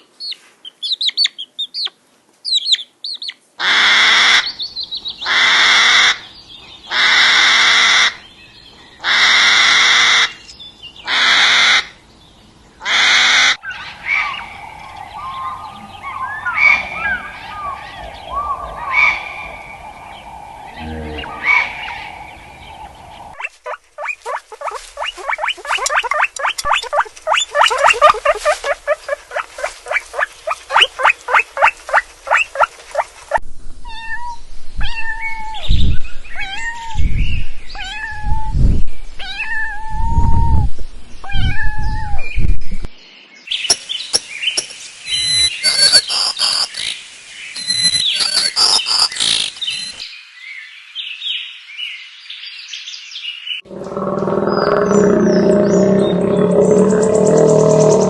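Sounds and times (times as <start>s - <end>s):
high-pitched animal cries: 23.4s - 32.7s
short repeated animal calls: 23.4s - 33.2s.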